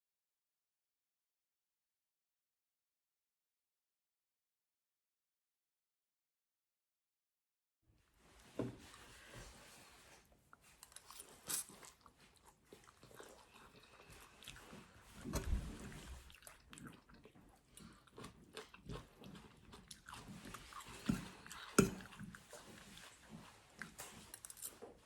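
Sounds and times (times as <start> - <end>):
person chewing crunchy food: 10.4 - 25.0.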